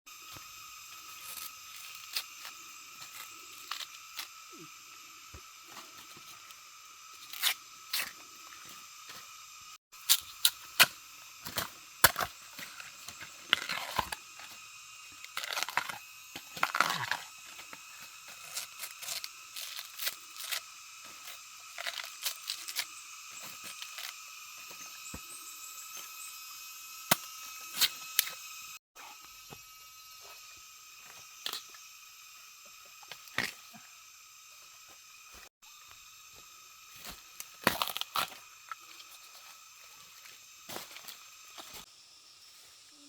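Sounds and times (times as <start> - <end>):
bamboo cracking and snapping: 13.2 - 20.7, 37.2 - 38.8.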